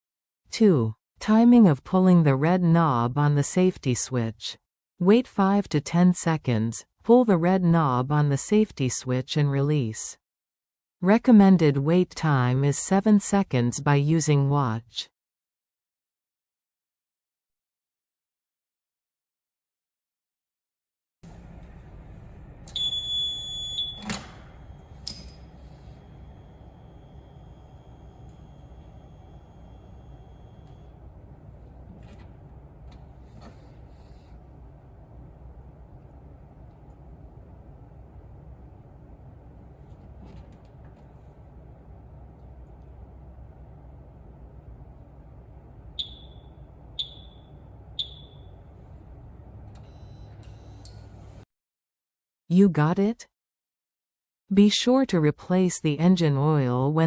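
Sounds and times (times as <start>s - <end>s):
warning buzzer beep: 22.8s - 24.2s, 46.0s - 48.6s.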